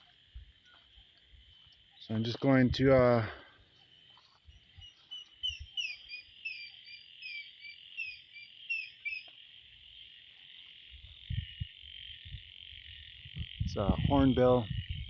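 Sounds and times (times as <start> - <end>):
frog chorus: 0.0 - 15.0
hornbill whistled calls: 4.6 - 9.3.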